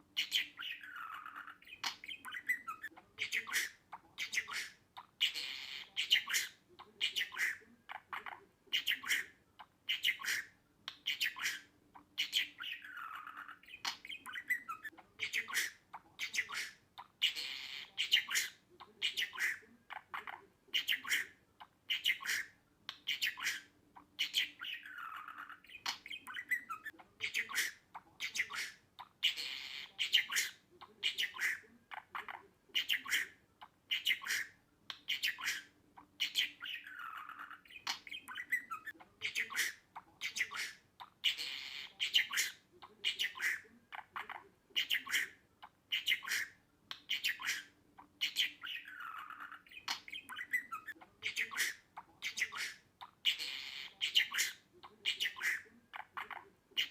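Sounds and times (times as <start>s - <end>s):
budgerigar chattering: 0.2s - 56.9s.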